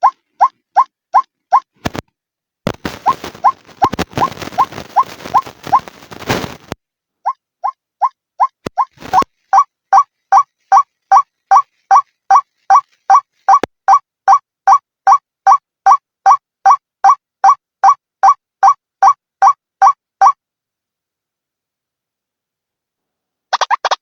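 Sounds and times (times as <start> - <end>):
waterhen calling: 8.4 - 13.7.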